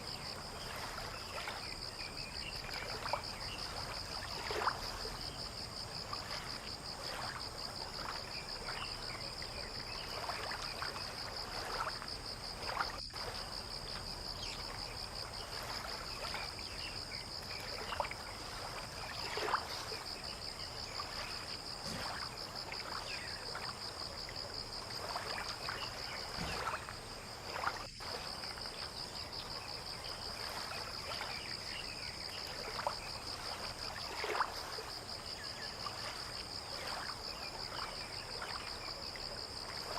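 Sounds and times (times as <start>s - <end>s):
insects chirring: 0.0s - 39.9s
water lapping and splashing: 0.0s - 39.9s.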